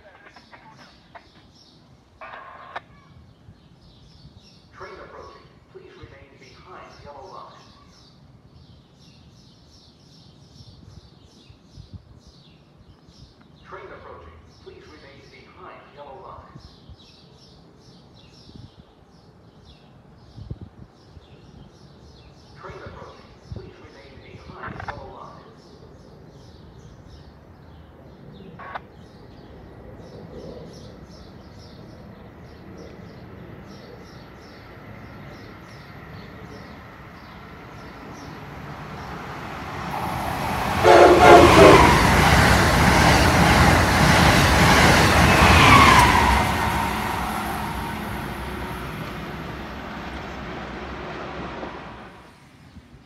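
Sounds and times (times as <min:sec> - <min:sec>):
birds chirping: 0:00.0 - 0:52.8
train rushing past: 0:29.2 - 0:52.7
train horn blast: 0:40.8 - 0:42.3.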